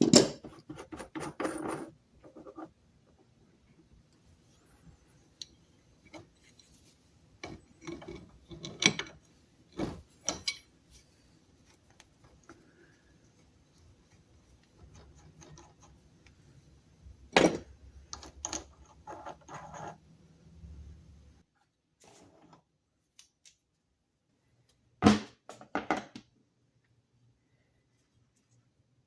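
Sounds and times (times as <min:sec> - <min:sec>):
parts knocking and scraping on bench: 0:00.0 - 0:02.8, 0:07.4 - 0:09.2, 0:14.7 - 0:16.0, 0:17.3 - 0:20.0.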